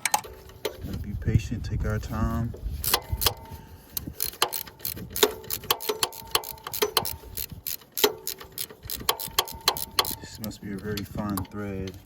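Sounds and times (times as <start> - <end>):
ratchet wrench clicking: 2.7 - 12.0.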